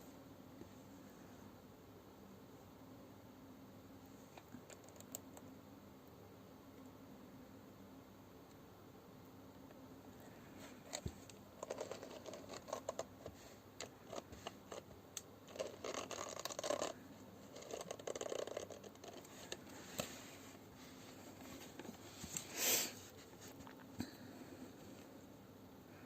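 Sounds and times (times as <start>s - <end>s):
scratching and rustling: 10.5s - 24.0s.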